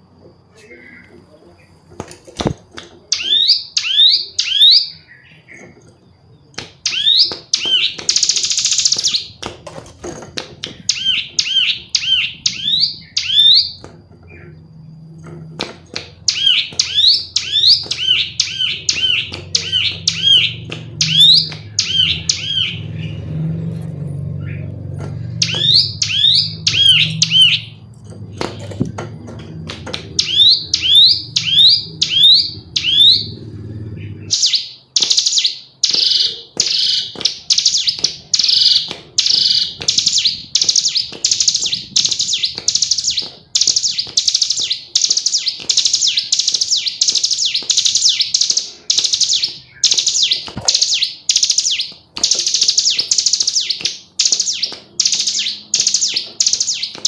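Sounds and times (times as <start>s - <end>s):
bird whistling and chirping: 3.2s - 5.6s, 6.8s - 9.4s, 10.8s - 14.6s, 16.2s - 23.2s, 25.4s - 27.8s, 30.2s - 33.4s, 34.0s - 57.0s.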